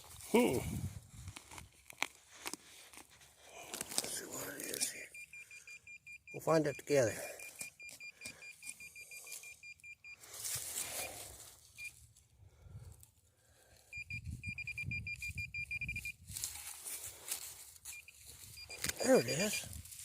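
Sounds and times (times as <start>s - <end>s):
digging in soil: 0.0s - 5.1s, 10.2s - 13.9s, 16.2s - 20.0s
metal detector beeping: 4.8s - 12.0s, 13.9s - 16.2s, 17.8s - 19.8s.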